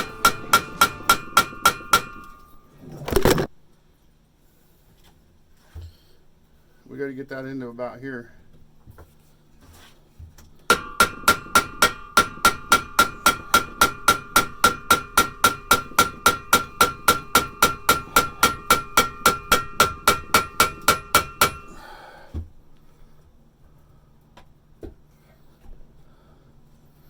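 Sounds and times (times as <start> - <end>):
hammer striking steel: 0.0 - 2.7, 10.7 - 21.8.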